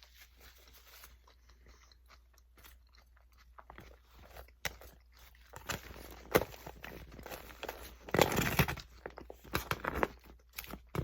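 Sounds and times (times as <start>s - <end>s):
crunching and chewing food: 0.0s - 11.0s.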